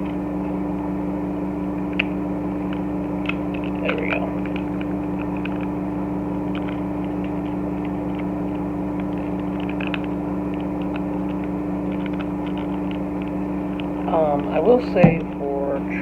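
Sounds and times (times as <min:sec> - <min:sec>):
low droning machine hum: 0:00.0 - 0:16.0.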